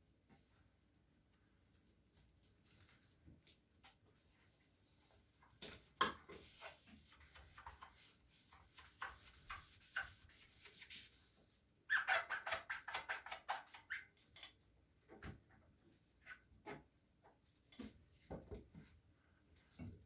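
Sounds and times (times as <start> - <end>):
wet sponge squishing: 4.8 - 14.0
sponge squeaking: 6.2 - 14.2.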